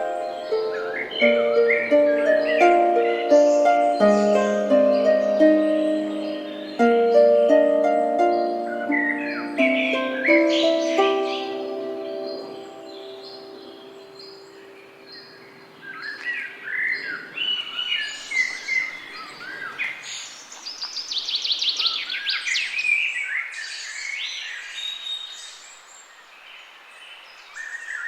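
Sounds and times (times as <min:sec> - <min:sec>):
held low musical note: 0:00.0 - 0:14.8
songbirds chirping and trilling: 0:00.0 - 0:28.0.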